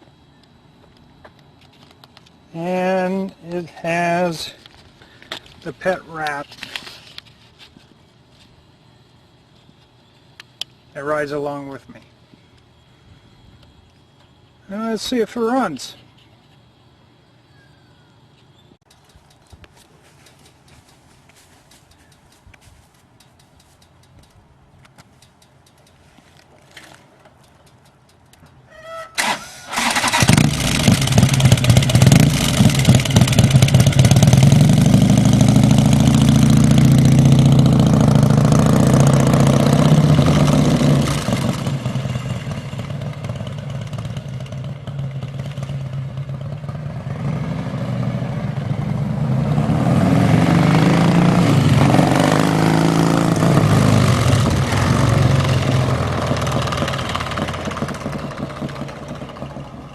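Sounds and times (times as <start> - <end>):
motorcycle engine cranking: 23.1 - 46.5
motorcycle engine running: 29.8 - 59.9.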